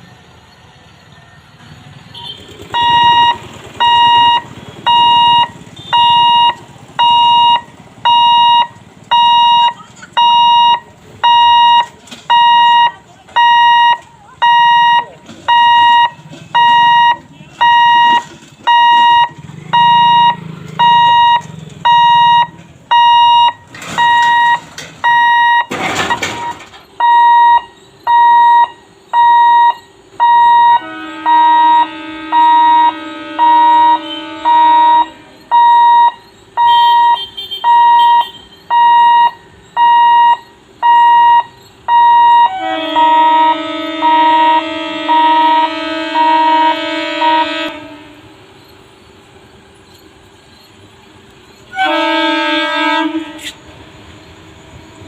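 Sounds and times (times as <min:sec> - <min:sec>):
level crossing alarm beeping: 0:02.2 - 0:48.0
low horn tone: 0:30.3 - 0:36.0, 0:42.4 - 0:48.4, 0:51.7 - 0:53.6.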